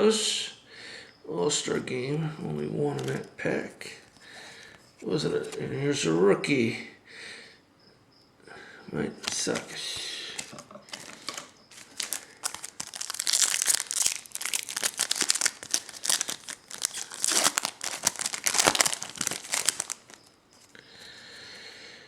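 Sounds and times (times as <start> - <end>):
wrapper tearing and crinkling: 10.9 - 20.3.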